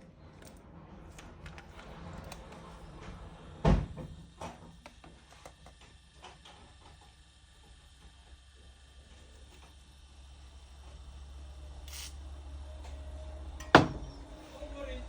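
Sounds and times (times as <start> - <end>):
loud sharp knock: 13.6 - 14.1.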